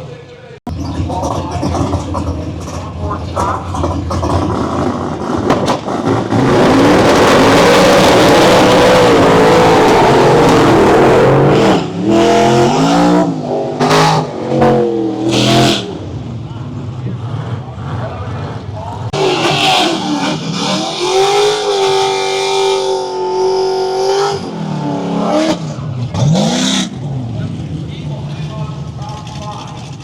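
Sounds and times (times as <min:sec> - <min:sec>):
drag car engine revving: 0:00.7 - 0:30.0.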